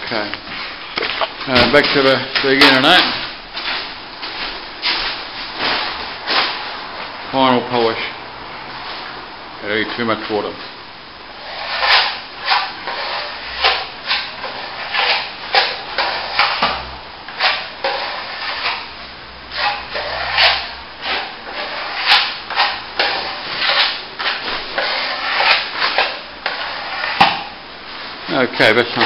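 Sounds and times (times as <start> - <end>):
steel trowel scraping wet plaster: 11.4 - 16.6, 17.4 - 27.3.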